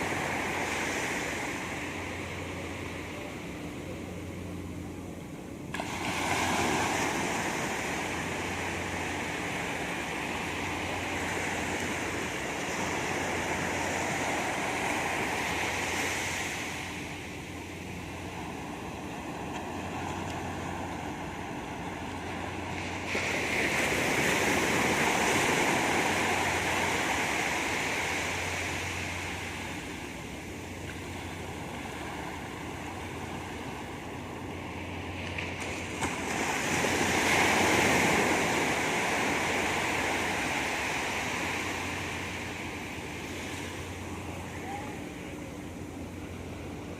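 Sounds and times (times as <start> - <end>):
sea waves breaking on beach: 0.0 - 46.9.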